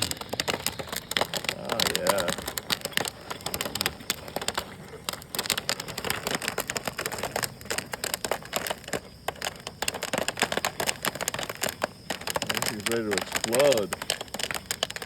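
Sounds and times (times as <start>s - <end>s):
popcorn kernels popping: 0.0s - 15.0s.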